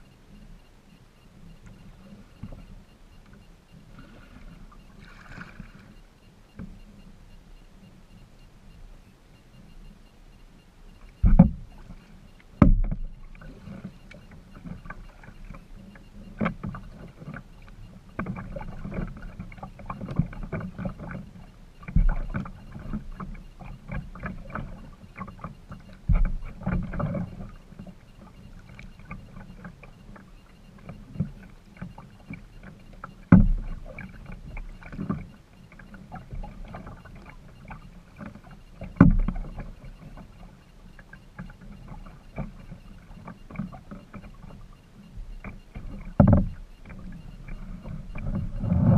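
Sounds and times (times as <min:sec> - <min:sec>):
paddle splashing and dripping: 0:00.0 - 0:48.9.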